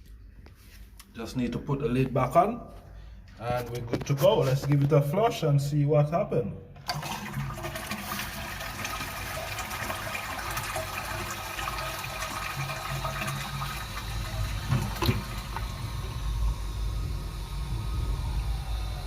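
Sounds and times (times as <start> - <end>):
toilet flushing: 6.8 - 19.0.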